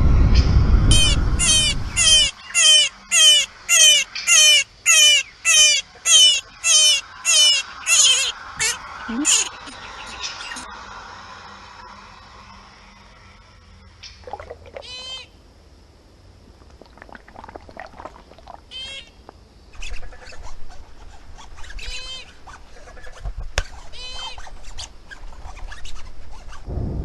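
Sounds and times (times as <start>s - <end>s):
gecko chirping: 0.9s - 10.7s, 17.9s - 20.8s.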